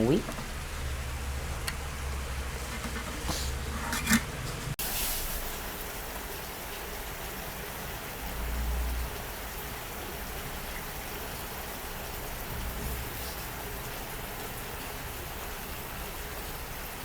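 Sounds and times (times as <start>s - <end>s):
chicken sizzling in a frying pan: 4.8s - 17.0s.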